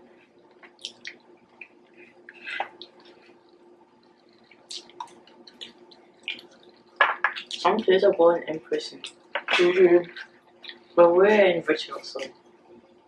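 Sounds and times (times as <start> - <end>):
faint steady hum: 0.0 - 13.0
wet chewing and lip-smacking: 0.4 - 7.7.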